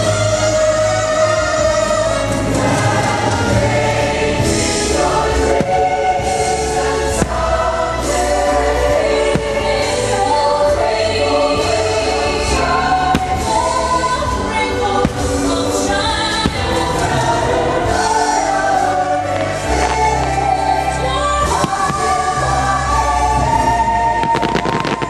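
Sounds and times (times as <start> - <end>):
choir singing over orchestra: 0.0 - 25.0
firework cracks: 24.2 - 25.0.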